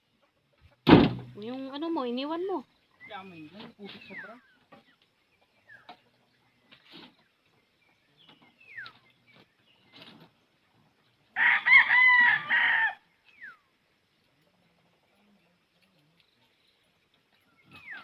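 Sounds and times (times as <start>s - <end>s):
rooster crowing: 11.4s - 13.1s.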